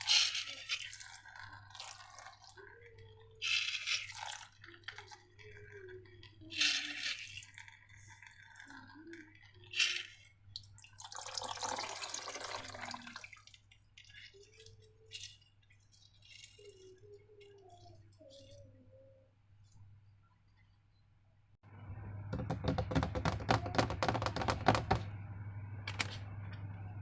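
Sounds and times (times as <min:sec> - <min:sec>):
wet squishy slime: 0:00.0 - 0:11.4
faint squeaks: 0:14.0 - 0:21.1.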